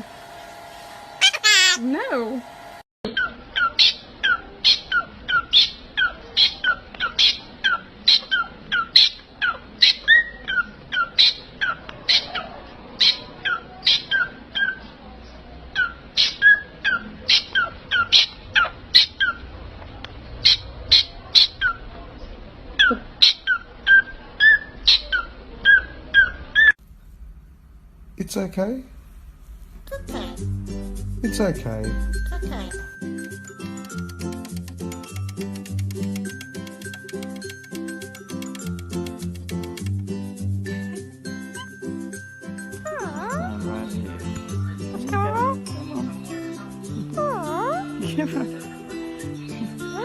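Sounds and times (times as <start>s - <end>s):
parrot giving sharp calls: 1.2s - 1.8s.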